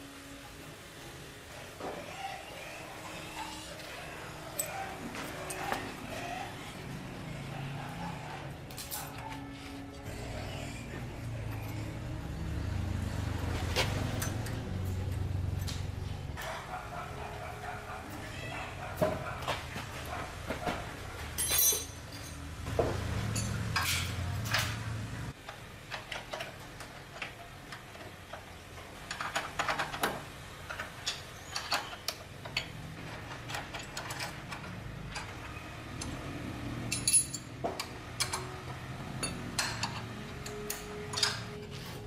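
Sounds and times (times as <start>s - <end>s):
metal tools clinking on engine: 13.6s - 15.9s, 21.3s - 24.9s, 25.9s - 41.8s.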